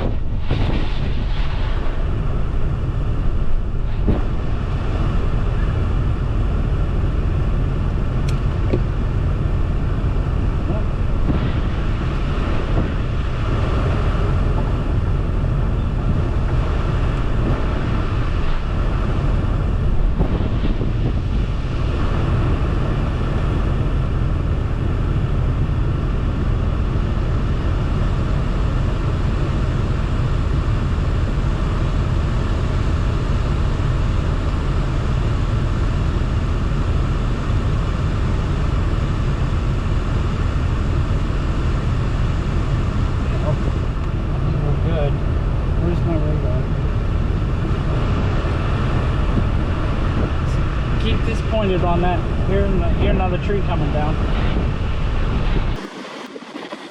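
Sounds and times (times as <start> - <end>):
strong wind buffeting microphone: 0.0 - 56.9
brief thump: 4.0 - 4.6, 11.2 - 11.9.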